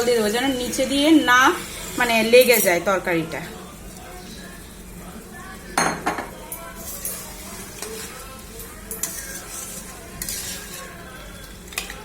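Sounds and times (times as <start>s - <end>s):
curry sizzling: 0.0s - 12.0s
metal spoon scraping a pan: 6.6s - 12.0s.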